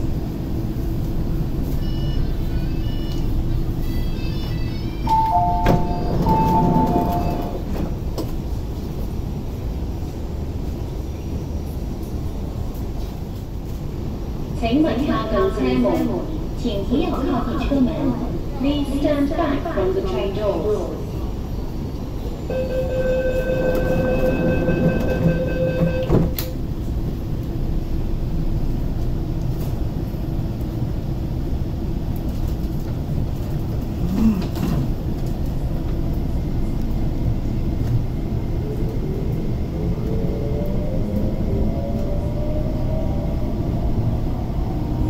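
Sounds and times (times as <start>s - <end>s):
rising train whine: 0.0s - 45.0s
train rumble: 0.0s - 45.0s
door closing warning tone: 5.0s - 7.6s, 22.5s - 26.6s.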